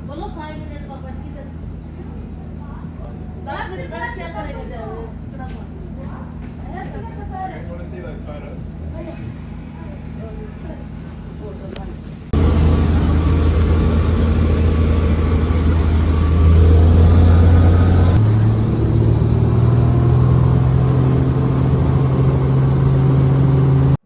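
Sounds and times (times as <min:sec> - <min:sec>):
helicopter engine and rotor: 0:06.6 - 0:24.0.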